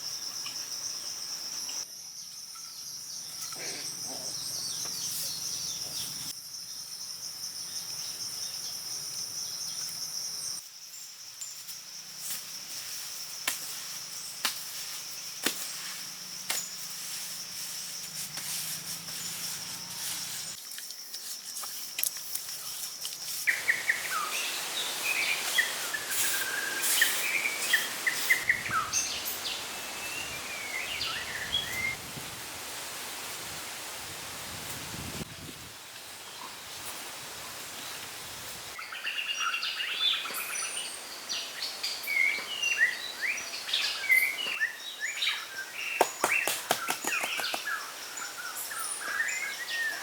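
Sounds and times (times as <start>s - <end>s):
high insect trill: 0.0s - 33.8s
birds chirping: 23.5s - 32.0s, 38.8s - 50.0s.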